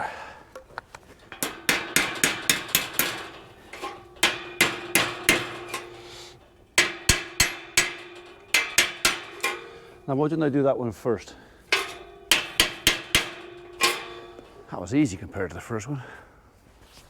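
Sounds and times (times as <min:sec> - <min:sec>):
hammer striking metal pin: 0:01.3 - 0:10.2, 0:11.7 - 0:14.7
steel gate ringing: 0:01.3 - 0:15.3.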